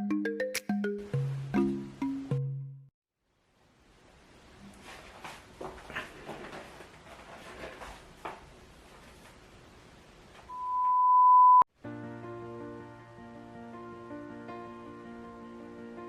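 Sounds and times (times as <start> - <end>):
high electronic beep: 10.5 - 11.7.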